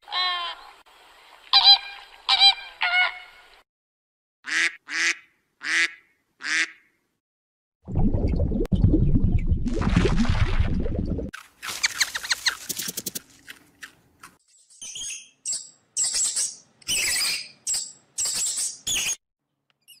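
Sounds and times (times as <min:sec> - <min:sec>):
bird-like chirps and clicks: 0:11.6 - 0:13.2, 0:14.2 - 0:20.0.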